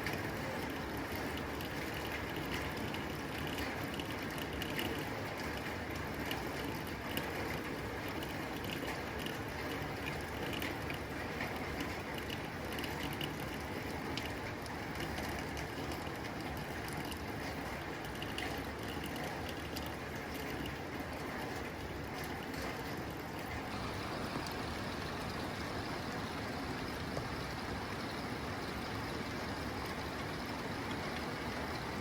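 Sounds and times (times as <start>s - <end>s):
rain on a tin roof: 0.0s - 32.0s.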